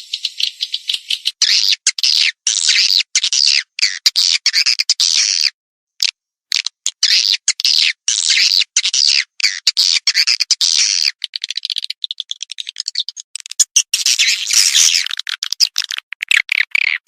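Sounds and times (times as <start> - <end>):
swiftlets twittering and chirping: 0.0 - 3.5, 10.2 - 16.9.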